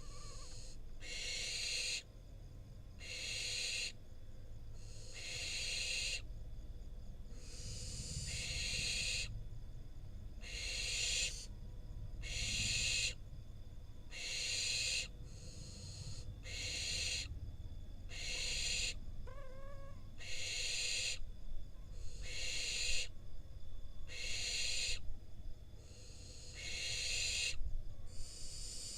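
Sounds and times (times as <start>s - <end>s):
owls hissing and screeching: 0.0s - 2.0s, 3.0s - 4.0s, 4.8s - 6.2s, 7.4s - 9.3s, 10.4s - 11.5s, 12.2s - 13.2s, 14.1s - 17.3s, 18.1s - 21.2s, 22.0s - 23.1s, 24.1s - 25.0s, 25.9s - 27.6s, 28.2s - 28.9s.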